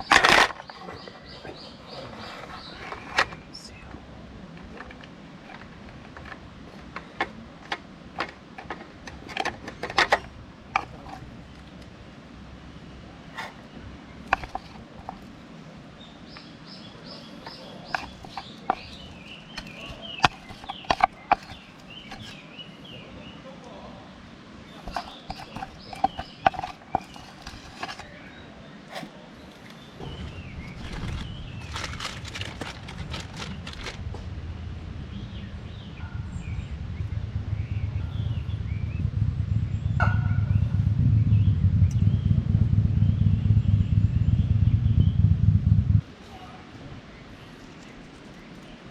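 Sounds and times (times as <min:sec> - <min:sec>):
small birds chirping: 0:00.0 - 0:34.2, 0:35.1 - 0:48.9
songbird singing: 0:00.0 - 0:48.9
vehicle engine rumble: 0:00.0 - 0:48.9.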